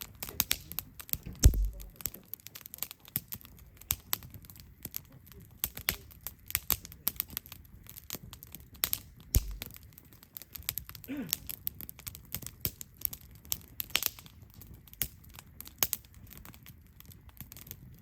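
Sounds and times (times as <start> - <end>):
campfire crackling: 0.0 - 18.0
fire popping and snapping: 0.0 - 18.0
deep thumps: 1.4 - 2.0, 9.4 - 9.6.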